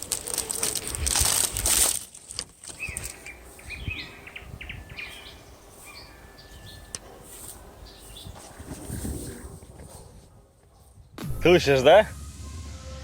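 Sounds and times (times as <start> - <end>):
loud crunching rustle: 0.0 - 4.3
birds chirping: 2.7 - 10.1.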